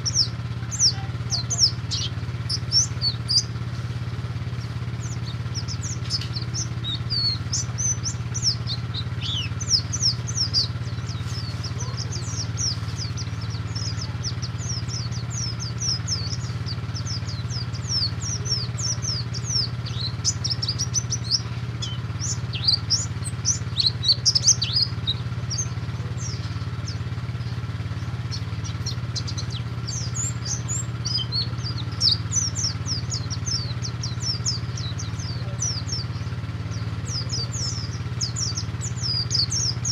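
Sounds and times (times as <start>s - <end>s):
bird chirps and twitters: 0.0s - 39.9s
steady low hum: 0.0s - 39.9s.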